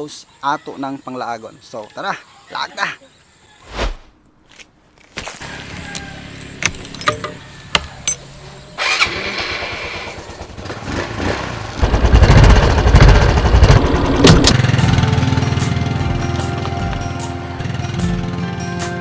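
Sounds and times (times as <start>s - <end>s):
vehicle engine running and revving: 5.6s - 18.4s.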